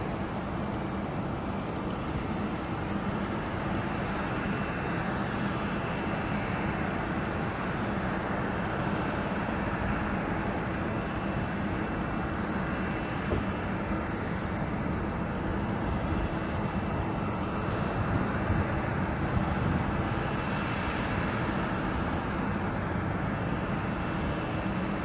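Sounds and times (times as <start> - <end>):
airplane engine roar: 0.0 - 25.0.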